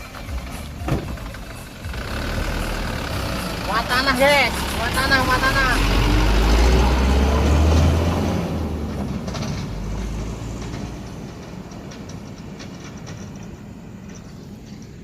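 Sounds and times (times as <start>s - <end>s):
knocks and rattles: 0.0s - 2.1s, 8.8s - 15.0s
truck engine rumbling: 0.0s - 15.0s.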